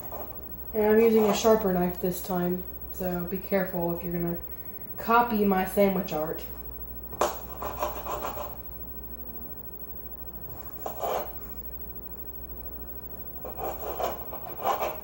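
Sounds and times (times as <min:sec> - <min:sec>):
knife chopping and scraping: 0:07.2 - 0:08.6, 0:10.7 - 0:11.4, 0:13.4 - 0:15.0.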